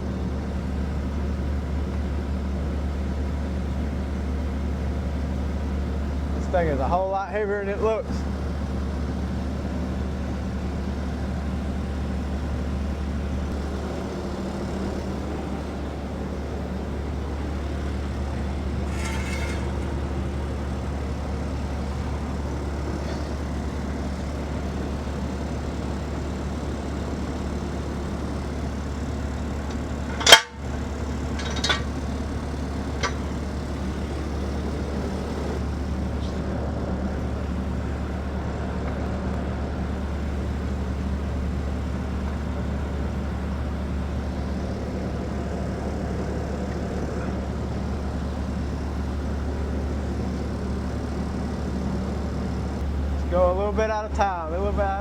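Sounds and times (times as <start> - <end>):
engine idling: 0.0 - 55.0
loud metal clank: 18.6 - 20.3, 30.0 - 32.2, 32.9 - 33.4.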